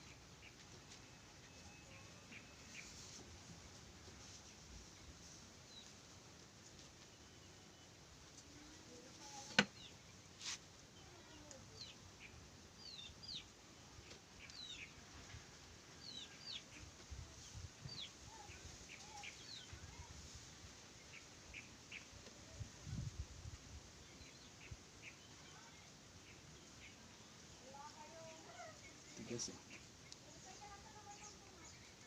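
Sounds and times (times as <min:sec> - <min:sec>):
small birds chirping: 0:04.2 - 0:15.2, 0:16.0 - 0:20.4, 0:23.9 - 0:32.0.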